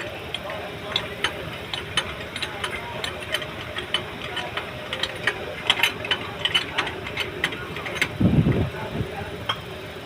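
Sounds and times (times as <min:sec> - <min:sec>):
sharp metallic ticks: 0:00.0 - 0:08.6
mechanical clicking and ratcheting: 0:00.0 - 0:08.7
steady low hum: 0:00.0 - 0:10.0.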